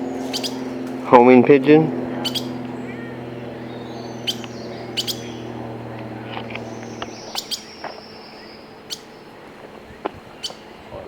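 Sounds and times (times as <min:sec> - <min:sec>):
songbird chirping: 0:00.0 - 0:01.0, 0:01.6 - 0:10.8
low hum: 0:00.0 - 0:10.9
sharp clicks: 0:04.3 - 0:05.2.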